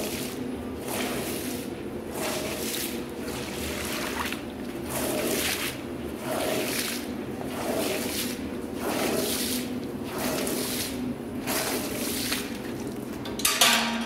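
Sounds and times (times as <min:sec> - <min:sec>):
water swishing on carpet: 0:00.0 - 0:12.8
machine hum: 0:00.0 - 0:13.5.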